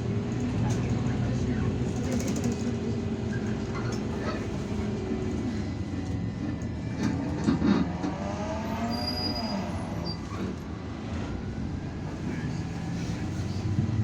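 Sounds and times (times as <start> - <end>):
bus engine and road rumble: 0.0 - 14.0
rattles and clicks: 1.8 - 2.8.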